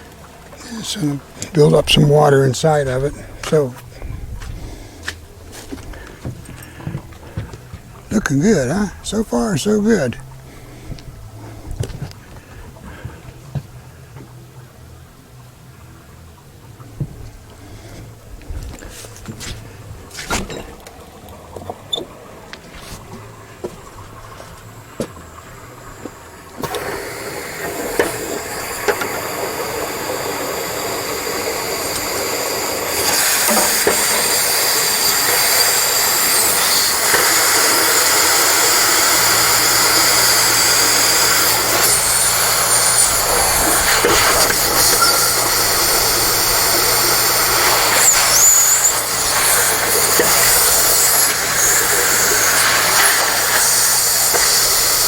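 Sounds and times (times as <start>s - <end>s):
low motor hum: 0.0s - 55.0s
compressed air hissing: 26.6s - 55.0s.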